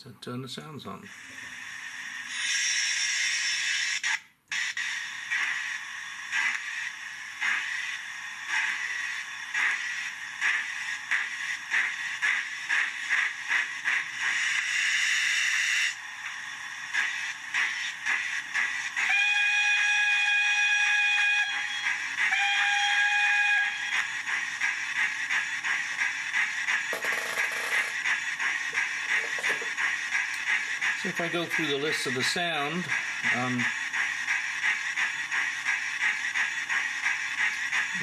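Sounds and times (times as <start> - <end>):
steam hiss: 1.0 - 38.0
steam engine exhaust chuffs: 4.9 - 38.0
steam whistle blasts: 19.0 - 24.1.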